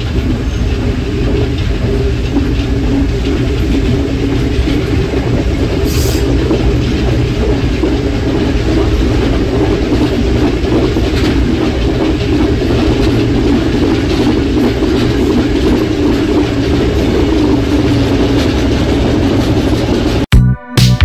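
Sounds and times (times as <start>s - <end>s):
train wheels rumbling on rails: 0.0s - 20.3s
electronic music: 20.0s - 21.0s.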